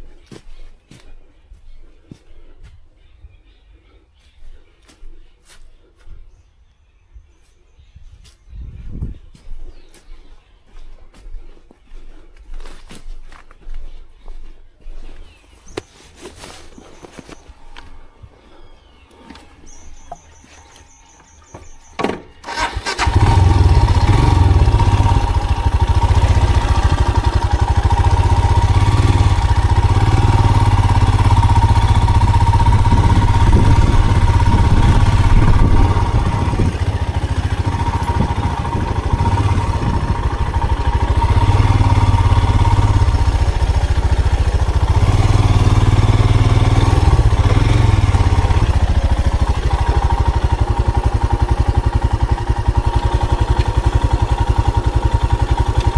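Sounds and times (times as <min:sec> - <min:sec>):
vehicle engine starting and running: 0:21.9 - 0:55.9.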